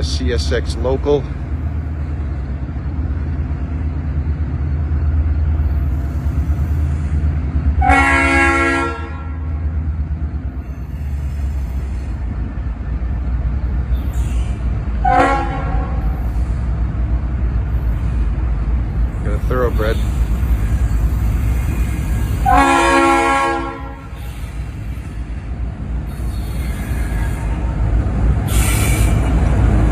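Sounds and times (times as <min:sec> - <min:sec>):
locomotive engine rumble: 0:00.0 - 0:29.9
locomotive air horn blasts: 0:07.8 - 0:09.4, 0:15.0 - 0:16.2, 0:22.4 - 0:24.2.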